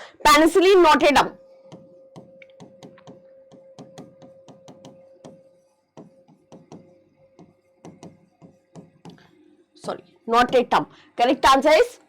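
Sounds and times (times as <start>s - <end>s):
rapid clicking and tapping: 1.7s - 10.9s.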